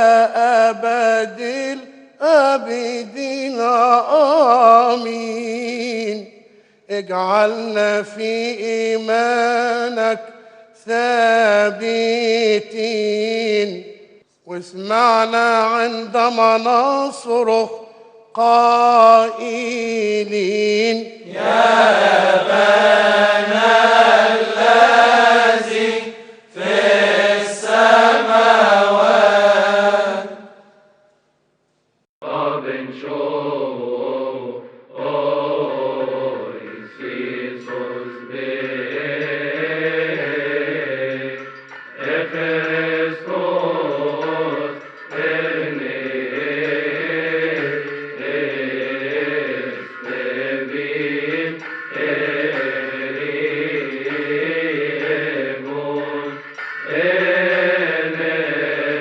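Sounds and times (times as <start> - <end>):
man chanting a hymn: 14.5 - 21.6.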